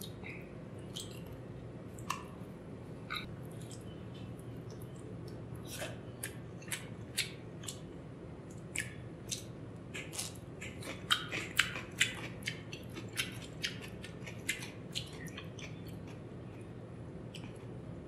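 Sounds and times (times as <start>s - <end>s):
mouth clicks and lip smacks: 2.0s - 2.4s, 8.5s - 12.6s.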